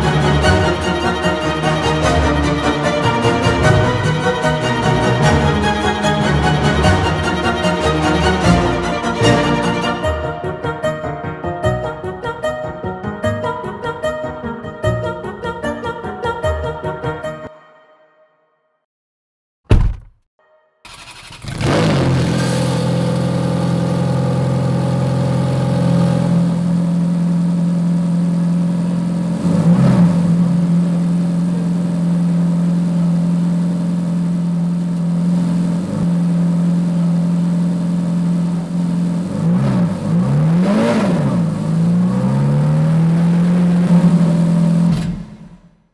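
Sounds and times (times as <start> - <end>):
car engine starting and idling: 20.9 - 45.6
engine revving blips: 39.2 - 44.9.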